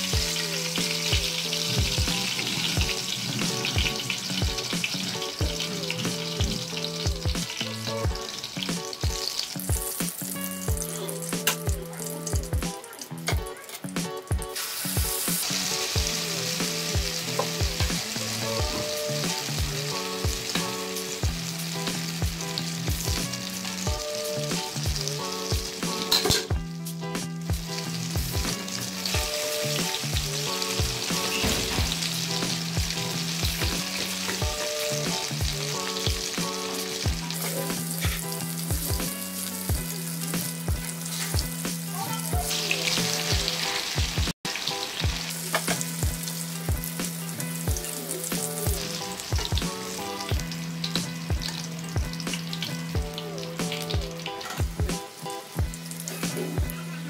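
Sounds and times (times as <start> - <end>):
omelette sizzling in oil: 0.0 - 26.2.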